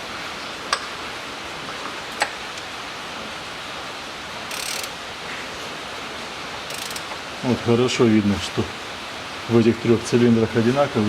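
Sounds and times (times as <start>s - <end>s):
steady hiss: 0.0s - 11.0s
sharp metallic clicks: 4.5s - 5.0s, 6.7s - 7.2s.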